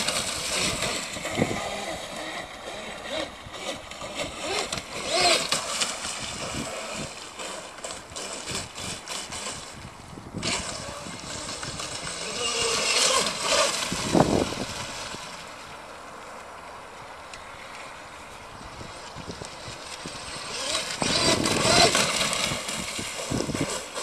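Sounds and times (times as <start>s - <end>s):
electric boat motor whine: 0.0s - 24.0s.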